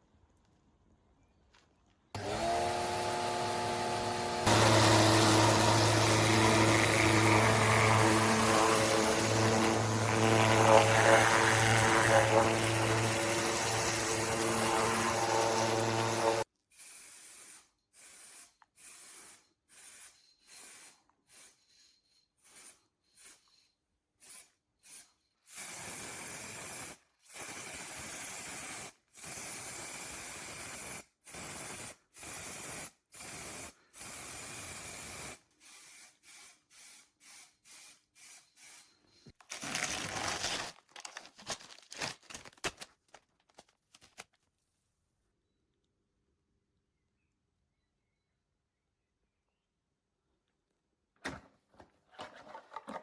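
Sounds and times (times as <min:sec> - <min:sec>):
power tool spinning: 0:02.2 - 0:23.6.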